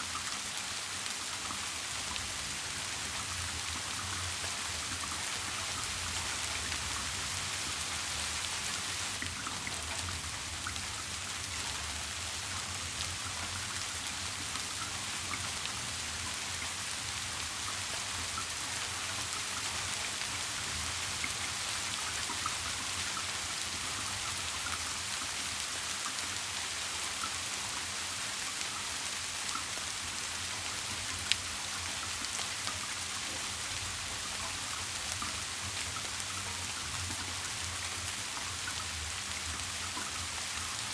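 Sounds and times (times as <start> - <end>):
steady rain with drop ticks: 0.0 - 40.9.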